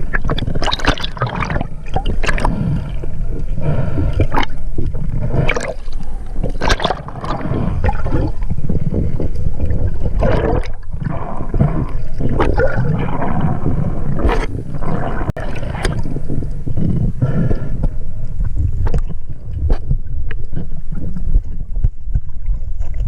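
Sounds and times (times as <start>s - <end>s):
water splashes: 0.0s - 3.0s, 4.2s - 16.6s
water sloshing and gurgling: 0.0s - 23.0s
low rumble: 1.2s - 23.0s.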